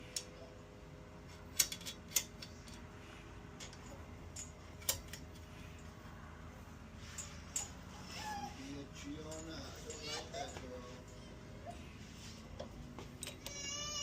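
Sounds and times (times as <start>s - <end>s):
faint steady hum: 0.0s - 14.0s
hand tools clicking and tapping: 1.3s - 2.9s, 3.6s - 5.9s, 7.1s - 7.9s, 9.1s - 11.2s, 12.5s - 13.9s.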